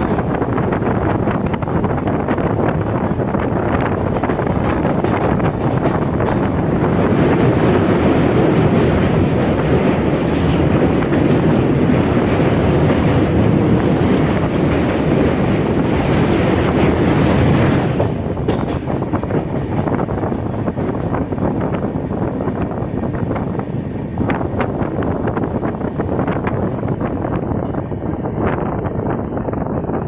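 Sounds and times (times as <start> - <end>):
wheels clattering over rail joints: 0.0 - 21.7
train rumble: 0.0 - 30.0.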